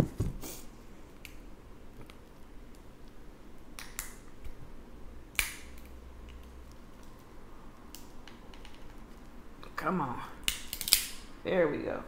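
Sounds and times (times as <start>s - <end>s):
crab shell cracking: 2.0s - 4.3s, 10.4s - 11.2s.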